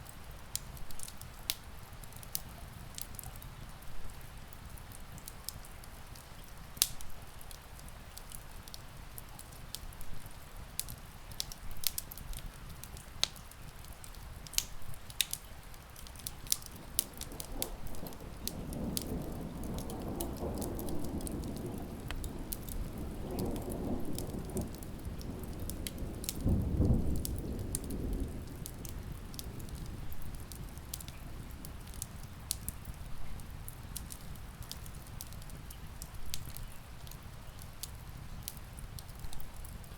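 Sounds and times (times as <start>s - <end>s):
steady rain: 0.0s - 39.9s
wood fire crackling: 0.0s - 39.9s
distant thunder rolling: 16.8s - 31.8s.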